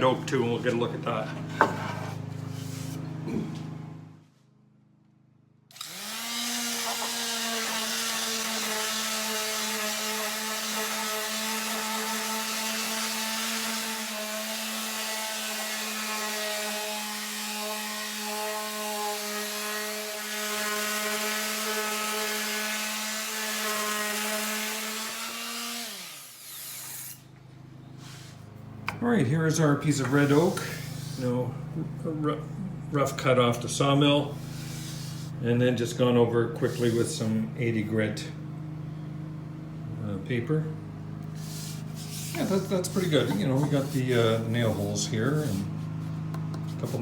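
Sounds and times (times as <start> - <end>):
electric sander whining: 5.7 - 17.0
sandpaper scratching wood: 34.4 - 35.4, 36.7 - 37.2, 41.3 - 46.0, 46.6 - 47.0.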